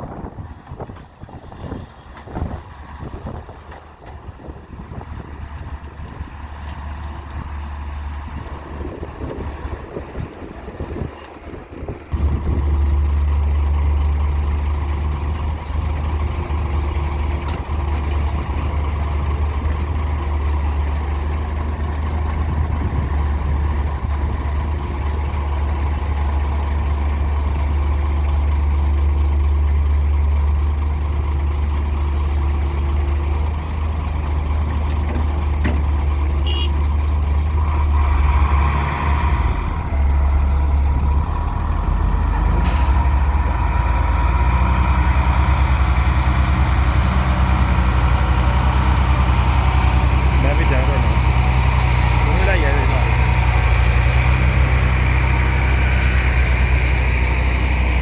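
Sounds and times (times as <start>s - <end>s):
wind noise: 0.0s - 13.0s, 22.3s - 24.9s
heavy diesel engine droning: 0.0s - 58.0s.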